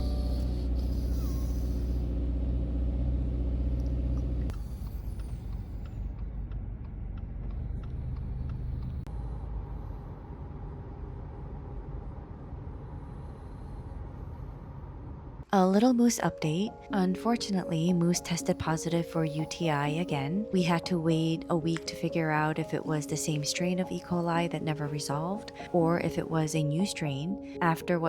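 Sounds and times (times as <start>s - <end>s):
vehicle engine rumbling: 0.0s - 15.5s.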